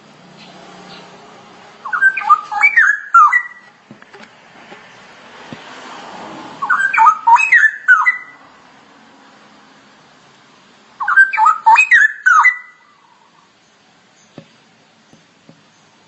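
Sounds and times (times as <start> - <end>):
bird whistled warbling song: 1.8 - 3.8, 6.6 - 8.4, 11.0 - 13.5.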